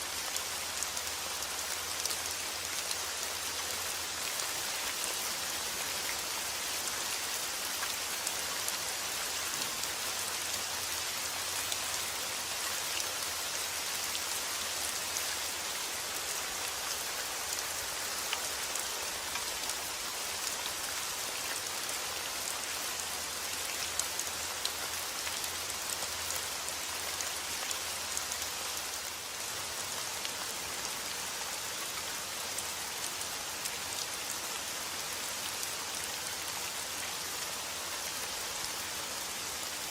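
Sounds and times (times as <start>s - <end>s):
steady rain falling: 0.0s - 39.9s
raindrops ticking on a surface: 0.1s - 34.1s.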